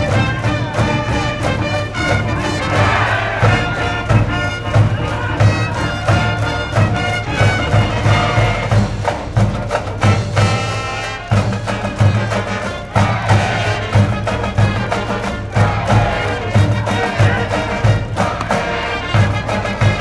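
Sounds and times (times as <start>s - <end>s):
steady bass drum beat: 0.0s - 10.7s, 11.4s - 20.0s
brass band playing: 0.0s - 20.0s.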